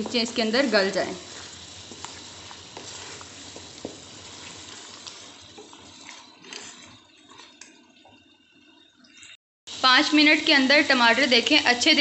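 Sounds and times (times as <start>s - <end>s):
meat frying sizzle: 0.0s - 8.7s, 9.7s - 12.0s
wooden spoon stirring and scraping: 0.0s - 9.3s.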